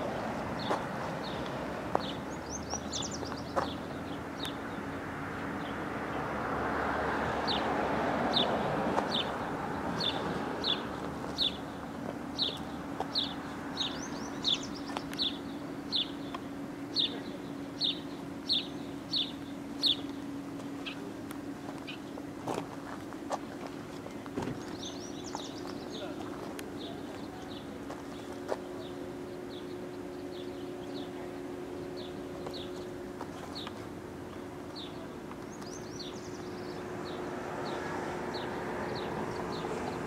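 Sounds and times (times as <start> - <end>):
small bird chirping: 12.4 - 17.2, 17.8 - 20.1, 24.7 - 26.1.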